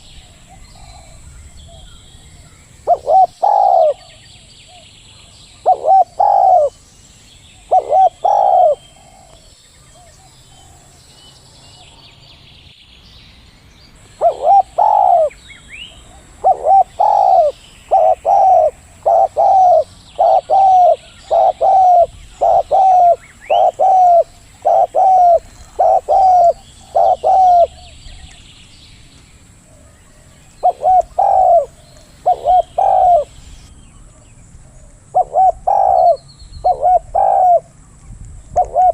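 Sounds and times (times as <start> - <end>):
small birds chirping: 0.0 - 38.9
dove cooing: 2.8 - 4.2, 5.2 - 6.7, 7.6 - 9.4, 14.2 - 15.4, 16.0 - 28.2, 29.6 - 33.4, 34.8 - 37.7, 38.6 - 38.9.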